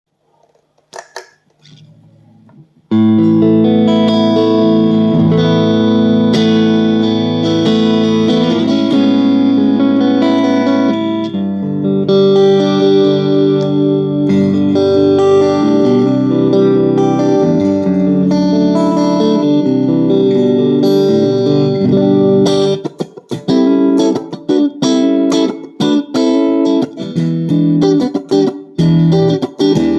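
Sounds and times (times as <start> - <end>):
faint low guitar notes: 1.6 - 22.6
electric guitar chord strummed: 2.9 - 29.9.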